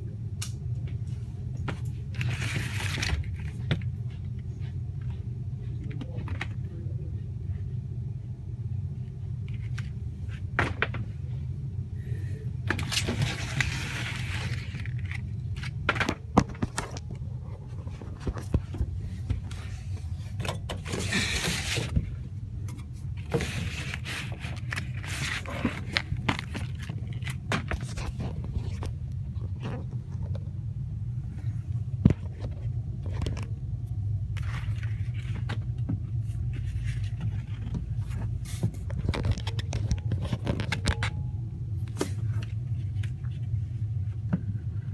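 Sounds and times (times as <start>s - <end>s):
hvac machinery humming: 0.0s - 44.9s
scraping rustling handling noise: 1.7s - 4.4s, 12.7s - 30.5s, 34.3s - 41.2s.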